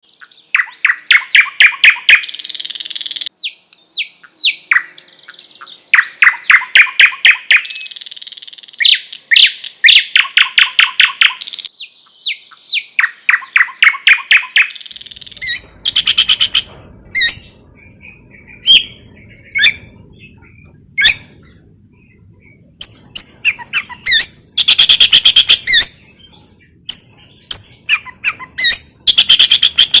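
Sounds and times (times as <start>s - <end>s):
songbird singing: 0.0s - 30.0s
faint low hum: 15.0s - 30.0s.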